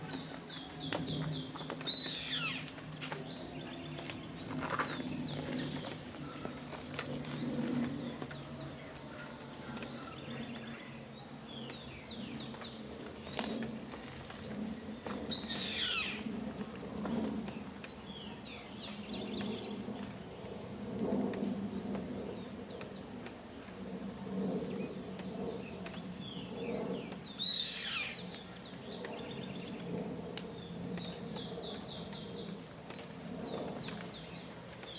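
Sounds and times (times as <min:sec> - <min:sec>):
bird call falling in pitch: 0:01.9 - 0:02.7
soft chirps: 0:01.9 - 0:02.9.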